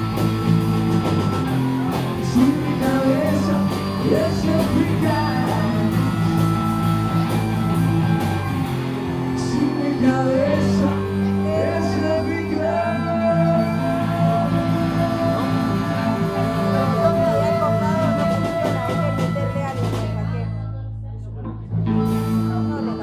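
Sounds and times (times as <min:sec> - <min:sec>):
person singing: 0:00.0 - 0:20.4
live rock band playing: 0:00.0 - 0:20.6, 0:21.7 - 0:23.0.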